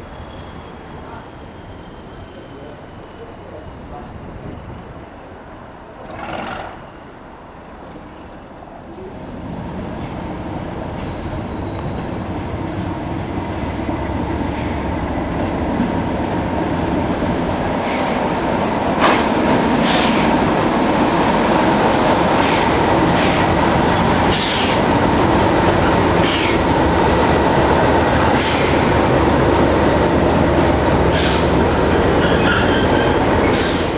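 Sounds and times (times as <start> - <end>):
train wheels clacking and squealing: 9.9 - 12.8, 13.4 - 16.0, 17.7 - 20.5, 22.2 - 23.6, 24.3 - 25.0, 25.8 - 27.0, 28.0 - 29.0, 31.0 - 33.9.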